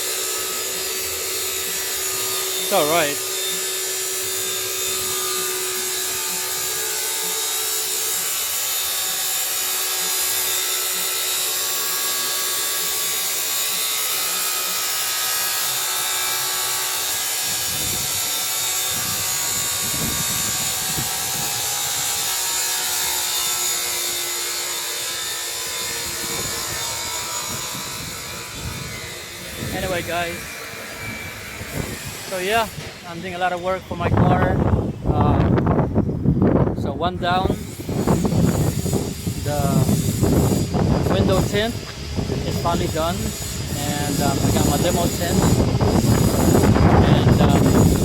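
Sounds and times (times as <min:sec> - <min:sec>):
machinery whirring hiss: 0:37.4 - 0:48.0.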